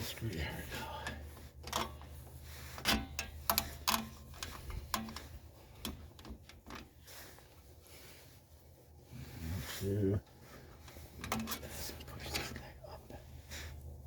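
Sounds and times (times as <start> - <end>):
metal tools clicking and tapping: 2.8 - 6.9.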